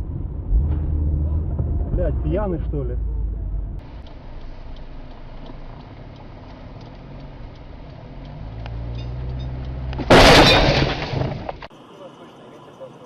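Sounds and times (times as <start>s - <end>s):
car engine and road hum: 0.0s - 13.0s
faint ticking: 3.8s - 9.9s
vehicle collision crash: 10.0s - 11.7s.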